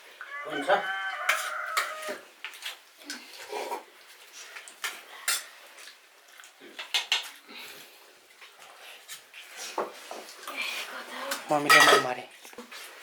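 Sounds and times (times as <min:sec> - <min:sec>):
spoons clinking on metal plates: 0:11.3 - 0:12.3.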